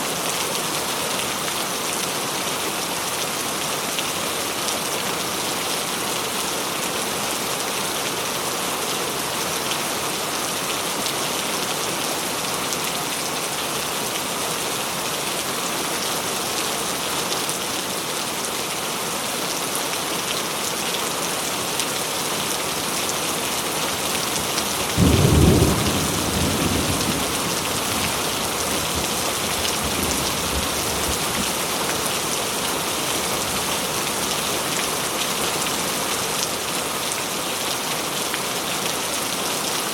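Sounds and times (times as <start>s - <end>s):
heavy rain falling: 0.0s - 39.9s
thunderclap rumbling: 25.0s - 29.1s.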